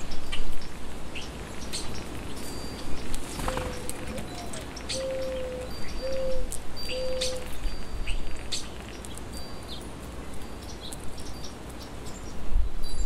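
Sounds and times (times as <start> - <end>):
small birds high calls: 0.0 - 13.0
low drawn-out bird cooing: 3.3 - 7.6.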